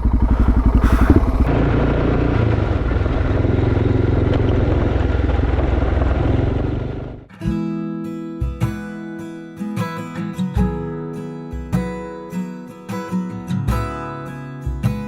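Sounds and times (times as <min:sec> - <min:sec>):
motorcycle engine thumping: 0:00.0 - 0:07.2.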